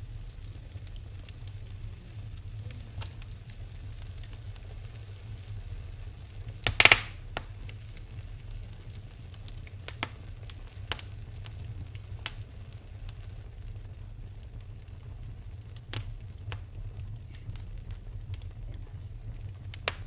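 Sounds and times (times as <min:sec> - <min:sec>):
low fire rumble: 0:00.0 - 0:20.0
wood fire crackling and popping: 0:00.0 - 0:20.0.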